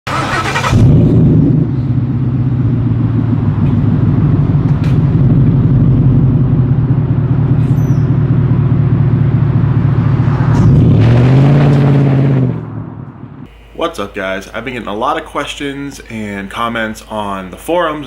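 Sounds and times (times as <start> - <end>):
engine idle rumble: 0.1 - 10.3.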